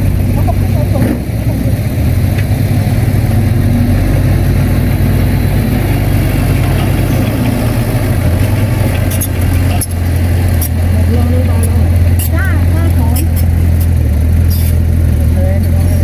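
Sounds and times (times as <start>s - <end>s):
diesel engine running: 0.0s - 16.0s
light metal clanks: 6.3s - 14.9s.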